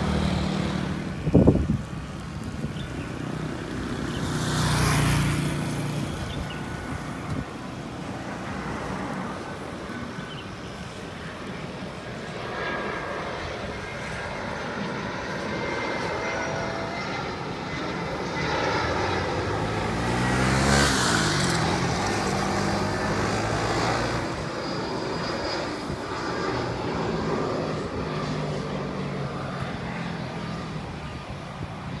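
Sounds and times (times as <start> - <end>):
jet airliner passing overhead: 0.0 - 32.0.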